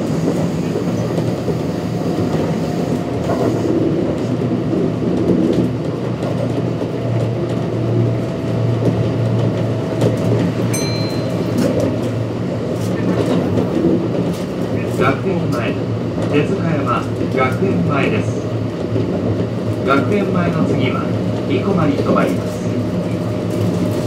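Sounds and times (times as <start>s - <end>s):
train wheels rumbling on rail: 0.0s - 24.0s
train clicks: 0.2s - 24.0s.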